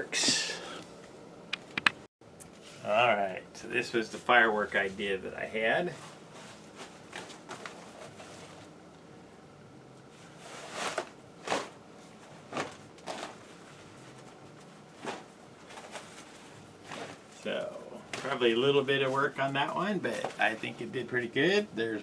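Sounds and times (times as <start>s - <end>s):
fabric rustling and swishing: 10.1s - 17.4s.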